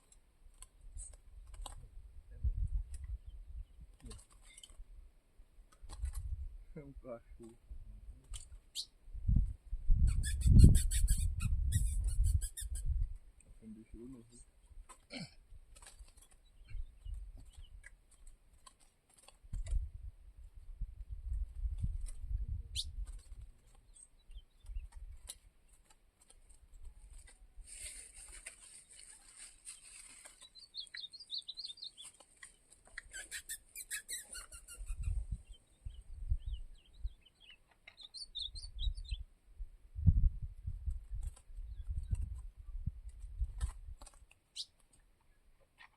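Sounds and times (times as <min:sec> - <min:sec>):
small birds chirping: 0:02.5 - 0:04.9, 0:05.7 - 0:09.0, 0:09.9 - 0:19.3, 0:21.0 - 0:39.3, 0:41.1 - 0:42.9, 0:44.0 - 0:45.9
low rumbles on microphone: 0:38.8 - 0:43.9.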